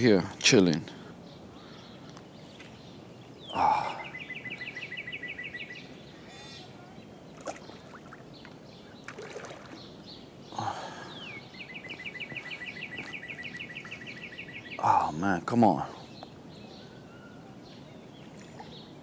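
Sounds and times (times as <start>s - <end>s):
outdoor background noise: 0.0s - 19.0s
songbird singing a trill: 0.9s - 19.0s.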